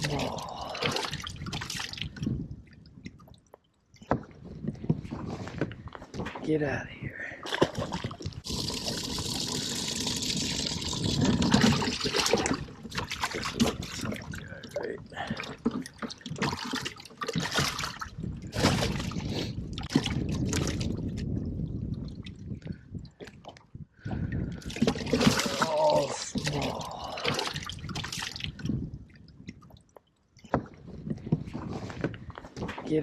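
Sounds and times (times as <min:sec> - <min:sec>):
fish splashing and knocking: 0:00.0 - 0:05.0, 0:07.5 - 0:14.4, 0:15.2 - 0:21.3, 0:24.2 - 0:28.8
water trickling and sloshing: 0:00.0 - 0:06.5, 0:07.4 - 0:33.0.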